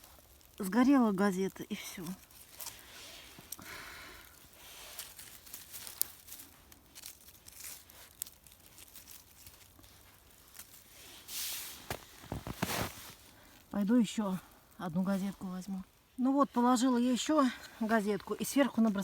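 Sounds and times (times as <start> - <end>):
newspaper rustling and crinkling: 0.0 - 13.9
twigs cracking: 0.0 - 16.3.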